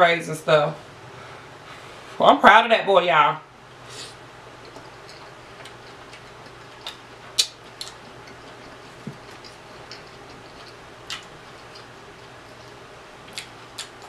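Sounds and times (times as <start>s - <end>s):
chewing food: 4.6s - 14.0s
mouth clicks and smacks: 4.6s - 14.0s.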